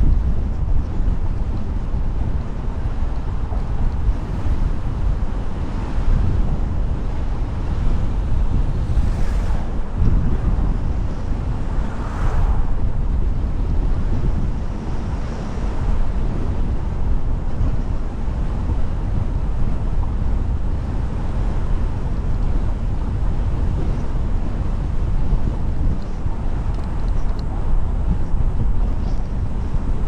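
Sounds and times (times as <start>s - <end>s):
wind on microphone: 0.0s - 30.0s
car road noise: 0.4s - 15.9s.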